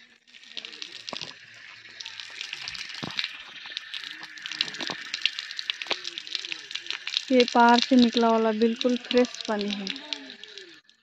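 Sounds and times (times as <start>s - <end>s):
faint voices: 5.8s - 10.8s.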